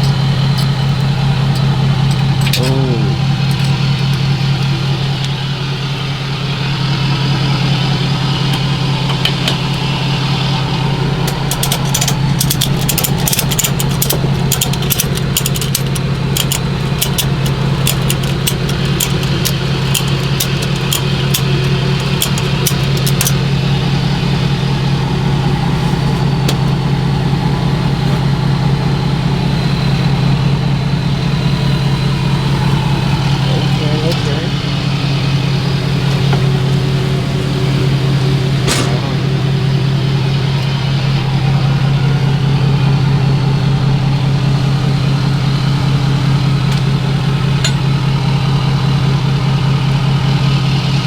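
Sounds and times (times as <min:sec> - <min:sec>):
truck engine idling: 0:00.0 - 0:51.0
sharp irregular clicks and taps: 0:11.3 - 0:23.4.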